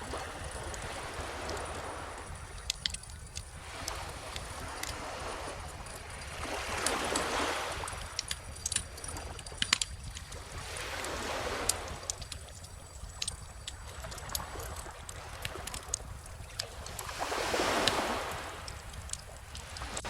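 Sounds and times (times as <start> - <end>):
ocean waves washing in: 0.0 - 9.2
wood fire crackling: 1.5 - 5.0, 7.9 - 10.8, 11.7 - 18.0, 18.6 - 20.0.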